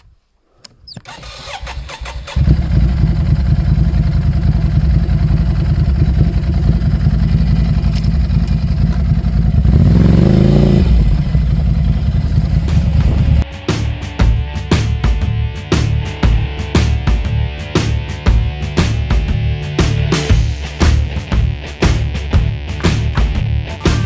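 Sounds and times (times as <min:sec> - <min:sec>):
motorcycle engine running and revving: 0:01.6 - 0:13.4.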